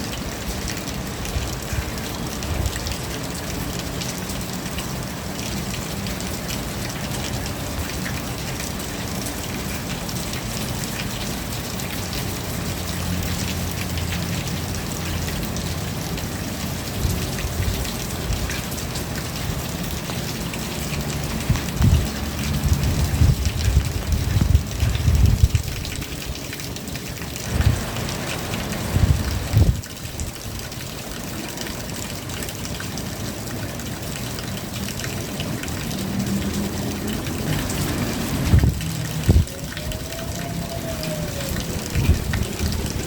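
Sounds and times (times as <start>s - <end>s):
steady rain falling: 0.0s - 43.0s
raindrop hits: 12.5s - 30.9s, 34.6s - 43.0s
low rumbles: 37.6s - 43.0s.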